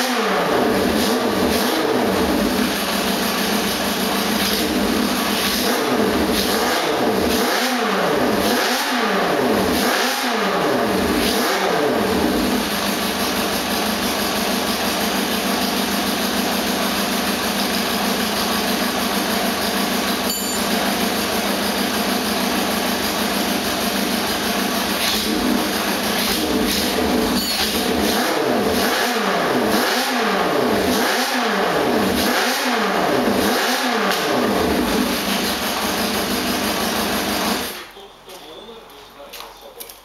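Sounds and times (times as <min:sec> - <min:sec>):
motorcycle engine revving and idling: 0:00.0 - 0:40.0.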